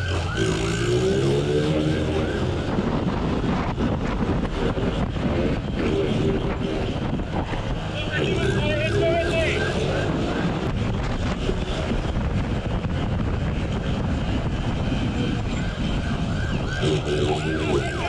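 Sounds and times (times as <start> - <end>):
police siren yelping: 0.0 - 2.9, 8.6 - 10.7, 15.4 - 18.0
wind rush: 1.0 - 18.0
motorcycle engine: 4.7 - 18.0.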